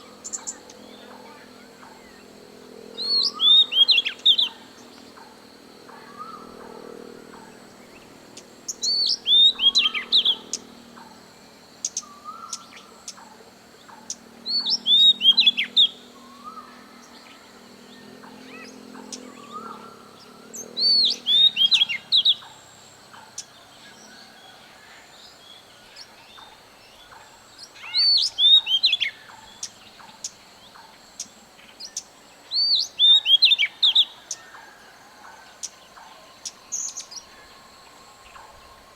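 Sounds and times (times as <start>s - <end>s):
faint high hum: 0.0s - 38.9s
bird whistling song: 3.0s - 4.6s, 8.7s - 10.6s, 14.4s - 16.8s, 18.5s - 22.5s, 27.8s - 29.7s, 31.9s - 34.2s.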